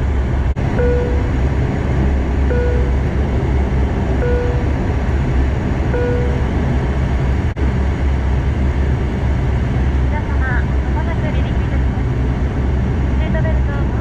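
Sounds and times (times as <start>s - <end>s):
aircraft cabin engine drone: 0.0s - 14.0s
short beeps: 0.8s - 1.3s, 2.5s - 3.0s, 4.2s - 4.7s, 6.0s - 6.5s.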